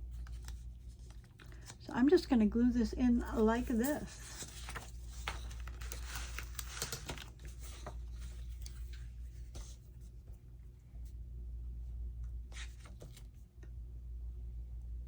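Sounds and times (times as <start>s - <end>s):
steady low hum: 0.0s - 15.0s
paper rustling and tapping: 4.2s - 9.8s.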